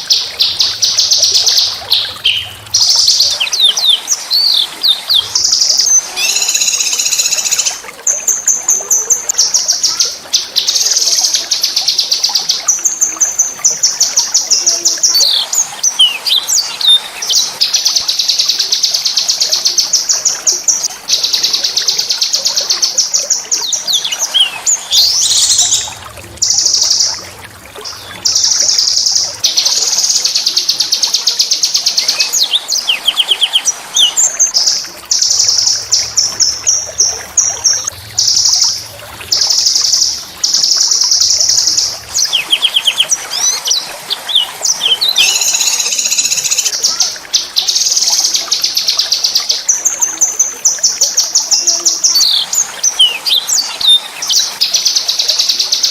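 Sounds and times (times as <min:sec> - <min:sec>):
songbird trilling: 0:00.0 - 0:07.8, 0:23.6 - 0:27.2, 0:35.2 - 0:46.7.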